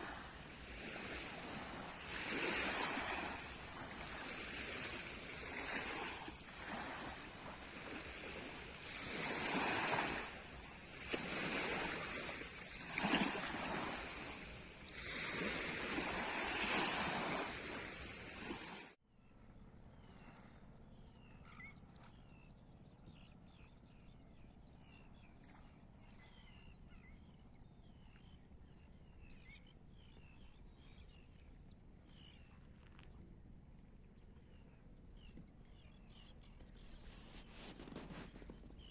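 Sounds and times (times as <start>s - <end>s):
sea waves breaking on shore: 0.0s - 19.0s.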